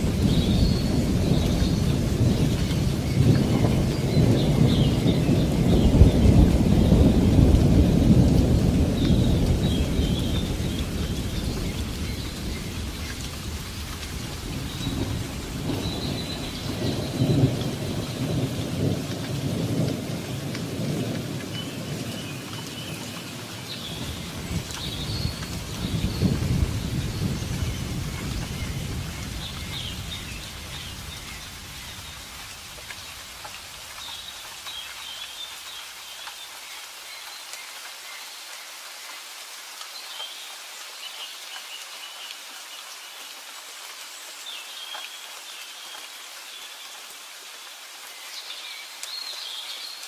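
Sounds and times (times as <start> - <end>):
rolling thunder: 0.0 - 22.5, 23.8 - 32.4
steady rain: 0.0 - 50.0.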